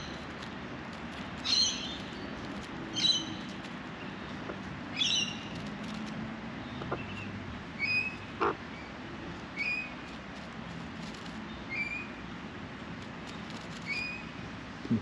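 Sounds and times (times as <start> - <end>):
bird chirping: 1.4 - 5.7, 6.6 - 10.1, 11.3 - 12.3, 13.2 - 14.4.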